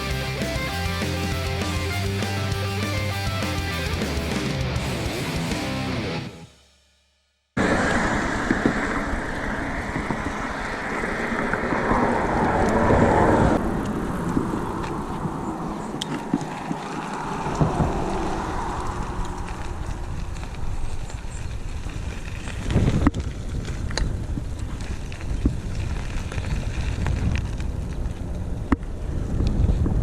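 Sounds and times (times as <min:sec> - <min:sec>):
tyres rumbling on trail: 0:00.0 - 0:06.4, 0:07.6 - 0:30.0
wind buffeting microphone: 0:07.6 - 0:30.0.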